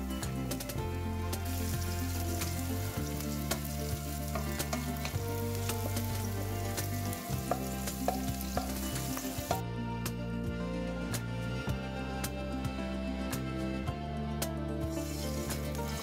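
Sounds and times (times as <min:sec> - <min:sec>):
oil sizzling in a wok: 0:00.0 - 0:09.6, 0:14.9 - 0:16.0
soft background music: 0:00.0 - 0:16.0
wooden spatula scraping pan: 0:02.2 - 0:09.2.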